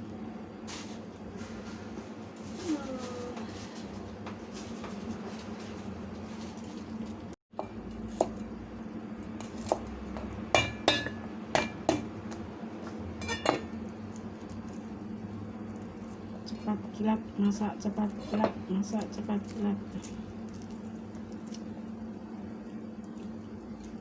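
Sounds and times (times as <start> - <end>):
steady low hum: 0.0 - 24.0
utensils clinking against dishes: 13.2 - 13.8.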